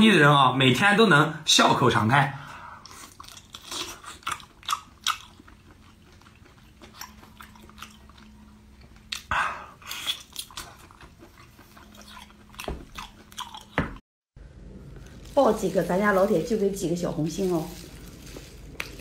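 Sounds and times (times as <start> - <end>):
wet chewing: 2.8 - 14.0, 17.4 - 19.0.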